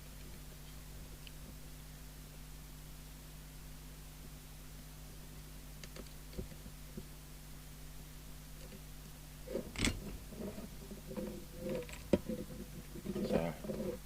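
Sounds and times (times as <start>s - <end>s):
low electrical hum: 0.0s - 14.0s
rustling clatter: 9.4s - 14.0s.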